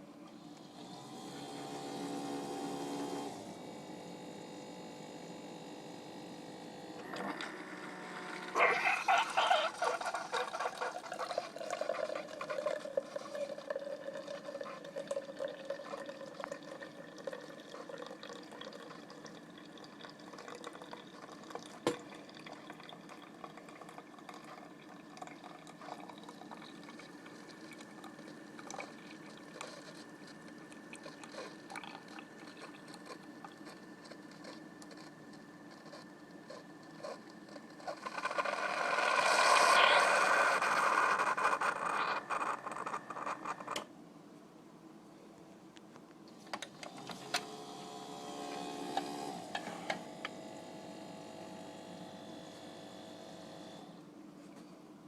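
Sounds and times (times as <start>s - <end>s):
coffee maker pump hum: 0.0s - 44.0s, 45.7s - 55.0s
coffee gurgling into cup: 0.4s - 43.9s, 46.6s - 54.0s
coffee dripping: 9.1s - 43.8s.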